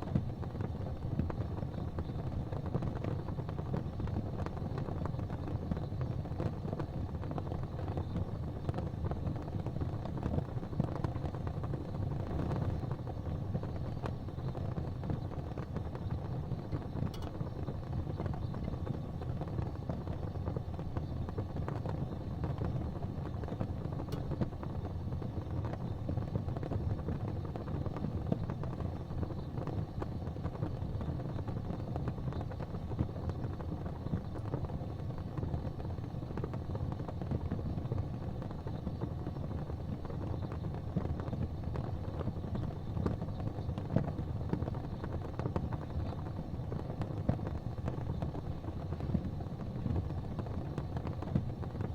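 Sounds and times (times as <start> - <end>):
gas fireplace flames rumbling: 0.0 - 51.9
faint ticks: 16.7 - 19.0, 23.5 - 24.6.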